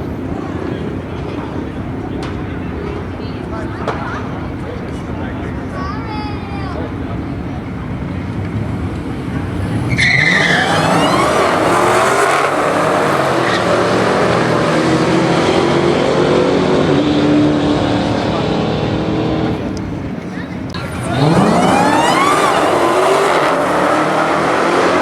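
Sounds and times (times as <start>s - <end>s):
race car engines revving: 0.0s - 5.8s, 6.4s - 25.0s
tires squealing: 9.3s - 19.6s, 20.8s - 25.0s.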